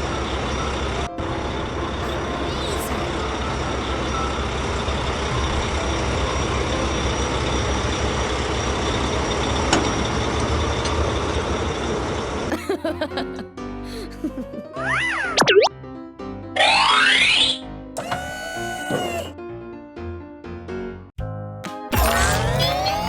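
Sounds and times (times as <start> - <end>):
truck engine and road rumble: 0.0 - 12.5
cartoon sound effects: 2.0 - 3.2, 14.8 - 15.7, 16.6 - 19.3, 21.9 - 23.0.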